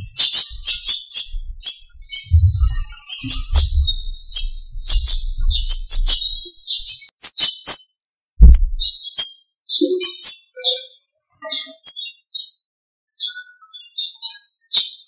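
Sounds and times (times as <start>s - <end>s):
low rumble: 0.0s - 6.9s, 8.4s - 8.9s
small birds chirping: 0.0s - 12.6s.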